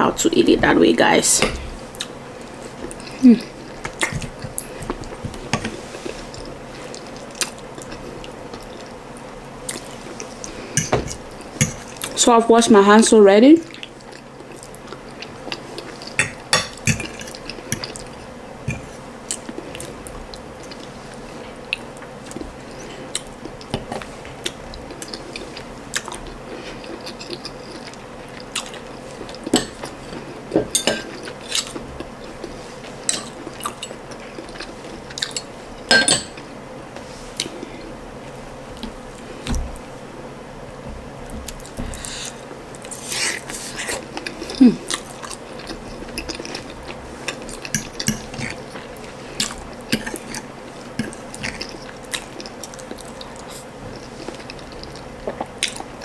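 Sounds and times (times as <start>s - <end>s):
chewing and wet mouth noises: 9.6s - 12.2s, 21.6s - 30.3s, 31.0s - 35.5s, 41.5s - 56.0s.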